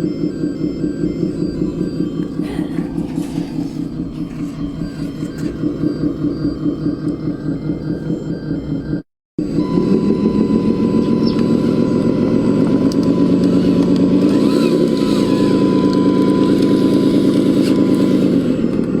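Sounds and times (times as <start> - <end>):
model truck engine throbbing: 0.0 - 19.0
thin steady whine: 0.0 - 19.0.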